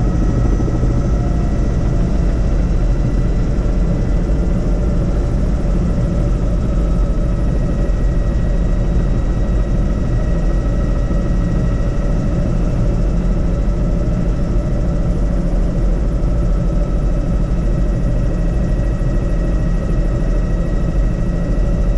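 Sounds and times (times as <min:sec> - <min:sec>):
helicopter rotor and engine drone: 0:00.0 - 0:21.9
high constant whine: 0:00.0 - 0:21.9.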